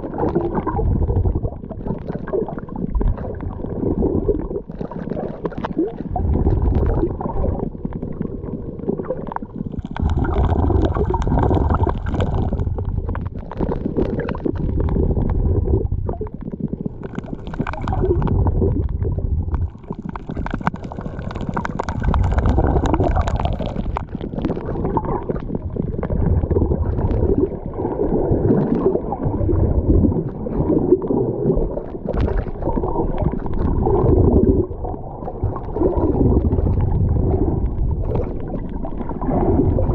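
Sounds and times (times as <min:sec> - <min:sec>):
seawater sloshing and gurgling: 0:00.0 - 0:39.9
heavy low rumble: 0:14.6 - 0:27.4.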